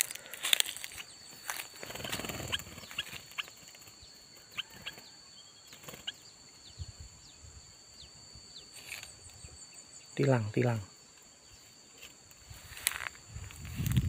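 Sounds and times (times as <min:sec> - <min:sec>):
high insect drone: 0:00.0 - 0:14.0
small bird chirping: 0:00.0 - 0:14.0.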